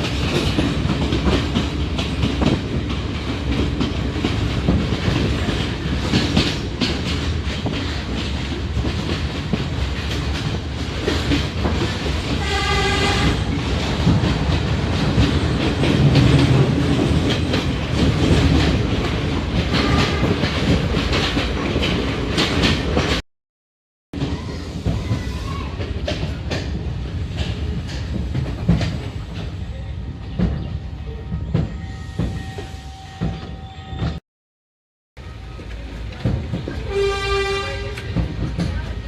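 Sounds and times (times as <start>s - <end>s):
train rumbling: 0.0s - 23.2s, 24.2s - 34.2s, 35.2s - 39.0s
wheels clacking over rail joints: 0.0s - 23.2s, 24.2s - 32.4s, 35.6s - 39.0s
train horn blast: 12.4s - 13.5s, 19.7s - 20.5s, 36.8s - 38.0s.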